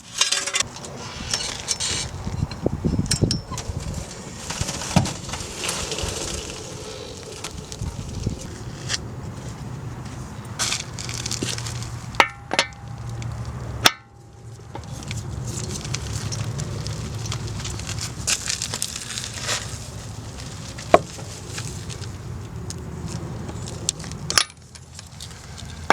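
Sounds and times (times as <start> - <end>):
metal tools clinking and scraping: 0.0 - 7.6.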